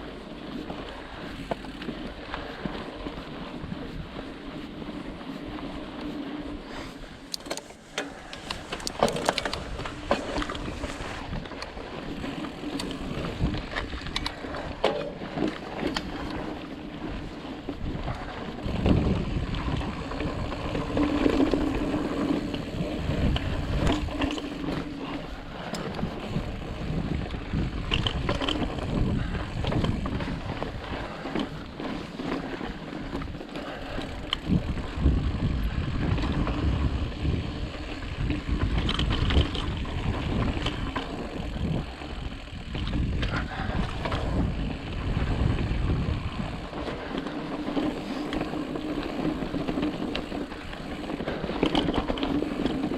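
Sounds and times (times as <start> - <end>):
bike clicks and knocks: 0.5 - 3.3, 4.6 - 52.9
tyres rolling over sand and rock: 6.1 - 27.0
wind on microphone: 8.1 - 52.9.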